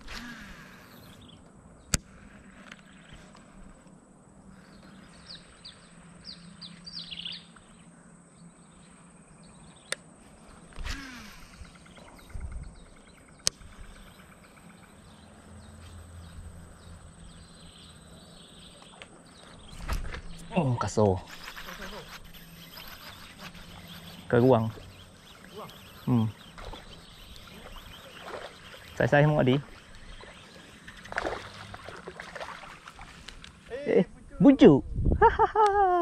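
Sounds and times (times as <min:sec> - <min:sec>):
bird chirping: 0:04.6 - 0:10.0, 0:11.5 - 0:33.3.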